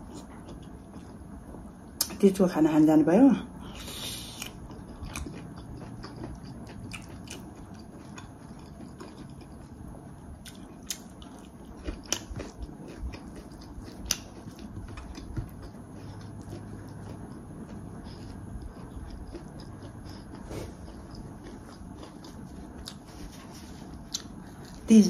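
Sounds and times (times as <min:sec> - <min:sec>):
person chewing food: 0:00.0 - 0:02.1, 0:03.6 - 0:25.0.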